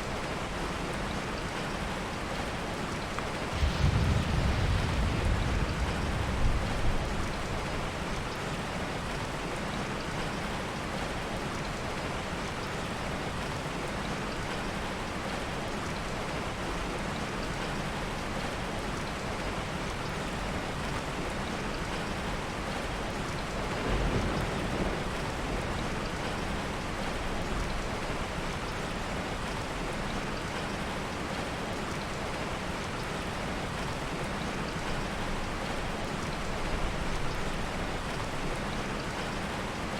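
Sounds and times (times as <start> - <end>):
heavy rain: 0.0 - 39.9
soft thunder rumbles: 3.3 - 10.2, 21.5 - 29.6.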